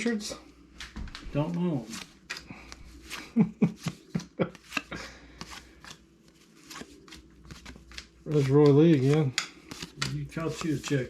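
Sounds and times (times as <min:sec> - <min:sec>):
cardboard cards flicking: 0:01.9 - 0:06.0, 0:06.6 - 0:11.0.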